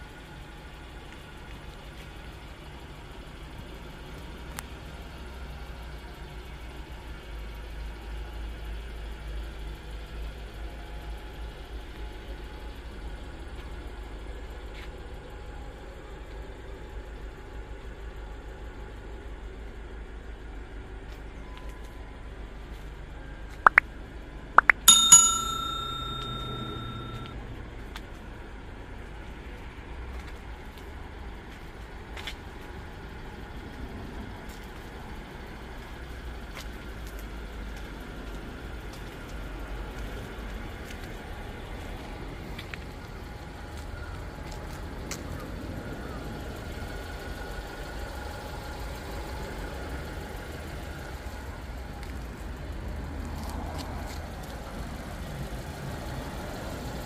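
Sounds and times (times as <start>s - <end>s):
loud metallic ring: 24.7s - 27.3s.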